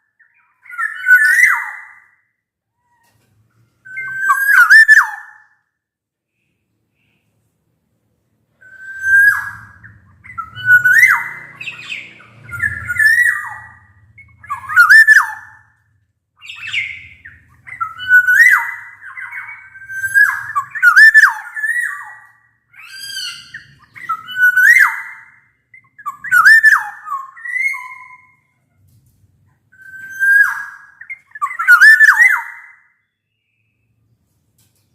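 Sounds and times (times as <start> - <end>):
oriole singing fluty whistles: 0.2 - 2.2, 3.8 - 5.4, 8.6 - 15.7, 16.4 - 28.4, 29.8 - 34.0.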